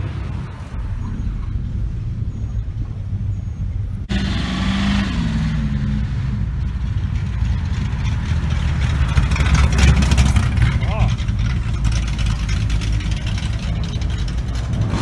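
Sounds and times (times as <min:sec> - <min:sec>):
deep engine rumble: 0:00.0 - 0:15.0
car passing by: 0:04.1 - 0:12.4.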